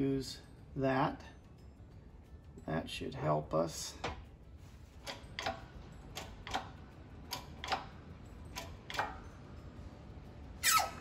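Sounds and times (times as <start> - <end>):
shop press clicking: 5.0 - 9.2.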